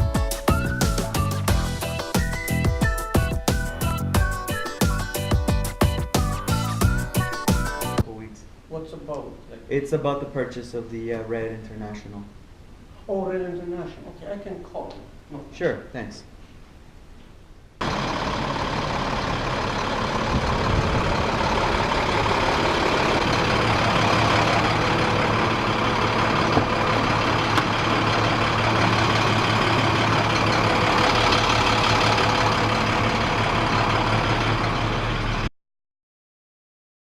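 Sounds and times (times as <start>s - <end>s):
truck diesel engine running: 0.0s - 8.0s, 17.8s - 35.5s
road and cab noise: 17.8s - 35.5s.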